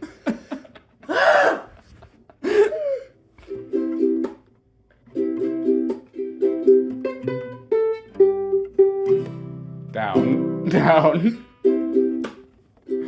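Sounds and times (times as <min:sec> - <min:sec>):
acoustic strings strummed: 0:03.4 - 0:13.0.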